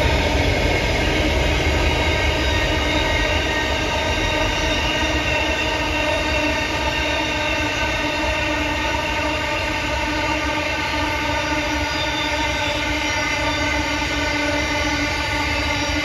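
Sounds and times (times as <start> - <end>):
locomotive engine running: 0.0 - 7.8.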